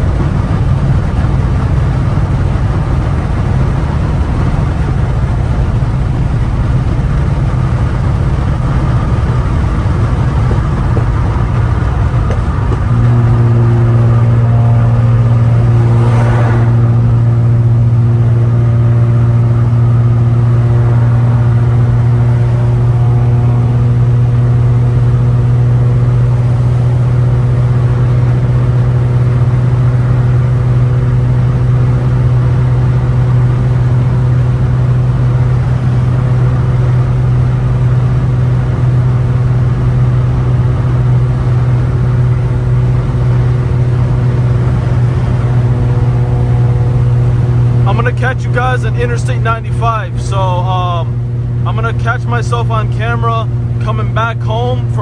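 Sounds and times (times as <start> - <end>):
loud car exhaust drone: 0.0 - 55.0
brief whoosh: 14.0 - 17.6.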